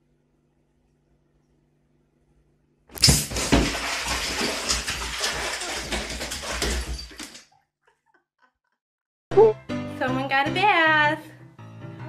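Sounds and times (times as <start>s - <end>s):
water splashing in bathtub: 2.9s - 8.0s
claws scrabbling on tub: 3.2s - 7.4s.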